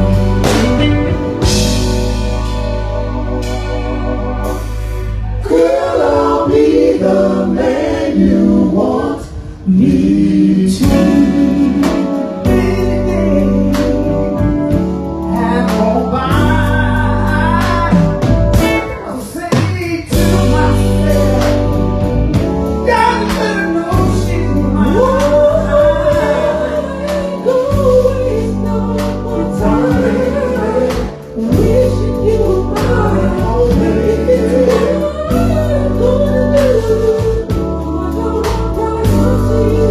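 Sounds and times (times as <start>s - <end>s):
band playing gospel song: 0.0s - 39.9s
person singing: 22.8s - 39.9s.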